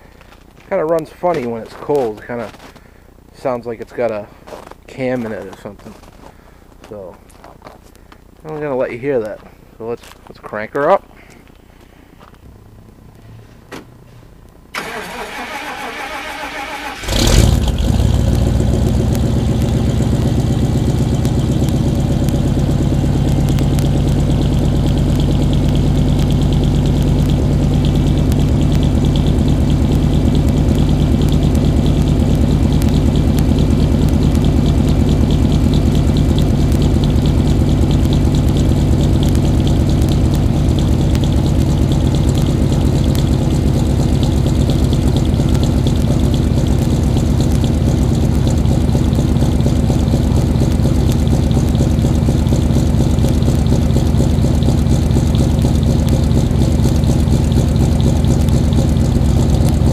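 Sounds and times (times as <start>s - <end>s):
engine lumpy idle: 14.7s - 59.9s
starter motor cranking: 14.8s - 19.1s.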